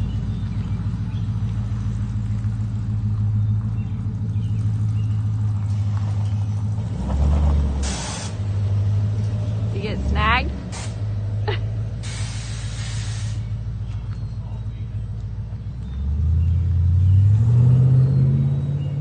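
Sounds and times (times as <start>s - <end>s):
pickup truck engine running: 0.0s - 17.5s
short hiss: 10.7s - 11.0s, 12.0s - 13.5s.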